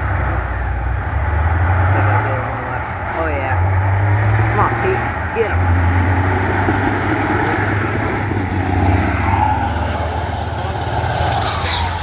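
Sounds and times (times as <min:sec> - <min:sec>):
diesel truck engines racing: 0:00.0 - 0:12.0.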